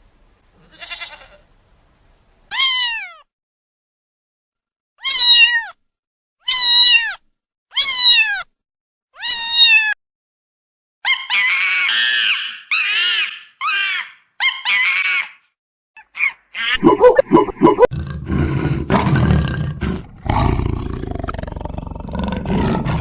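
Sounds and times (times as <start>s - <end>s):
cat meowing: 2.5s - 3.2s, 5.0s - 5.8s, 6.5s - 8.5s, 9.2s - 10.0s
rough cat calls: 17.9s - 23.0s.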